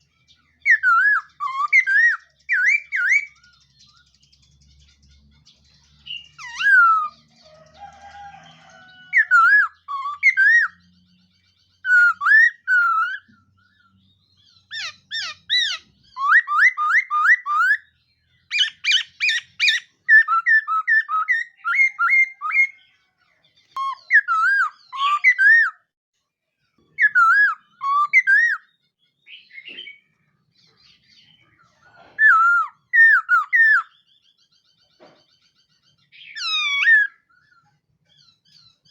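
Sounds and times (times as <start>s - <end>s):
laughingthrush singing: 14.7s - 17.8s.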